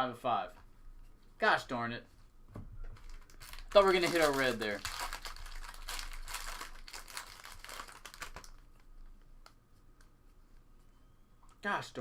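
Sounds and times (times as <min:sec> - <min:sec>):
foil wrapper crinkling: 0:03.0 - 0:08.9
trading cards rustling: 0:03.0 - 0:08.9.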